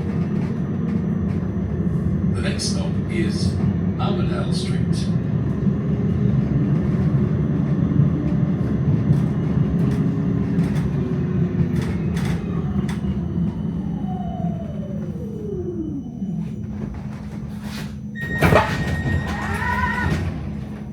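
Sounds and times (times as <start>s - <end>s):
tram rumbling on track: 0.0s - 20.9s
tram whine falling in pitch: 11.6s - 20.9s.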